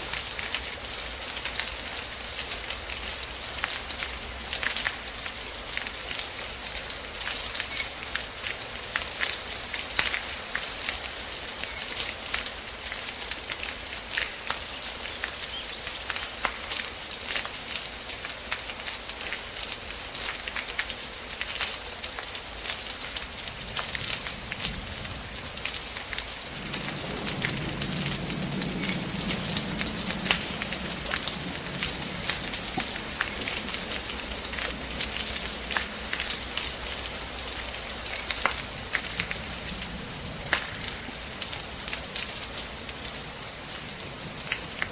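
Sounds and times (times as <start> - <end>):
rain falling: 0.0 - 44.9
sharp raindrop hits: 26.5 - 43.0.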